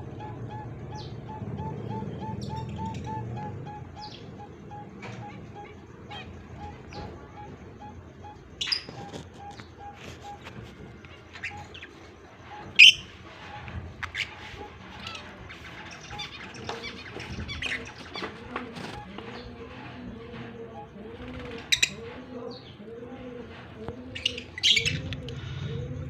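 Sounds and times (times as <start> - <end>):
budgerigars chirping: 0.1 - 10.4, 11.1 - 19.5.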